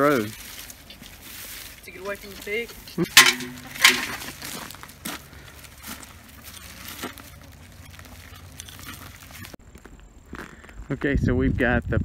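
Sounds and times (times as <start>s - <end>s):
poultry netting rustling and clicking: 0.0s - 4.8s.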